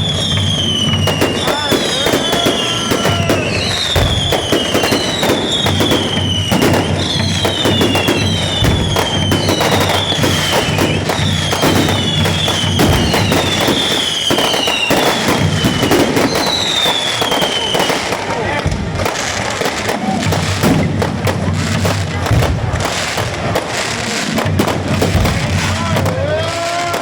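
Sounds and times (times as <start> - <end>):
high falling firework whistle: 0.0 - 18.3
fireworks crackling bangs: 0.0 - 27.0.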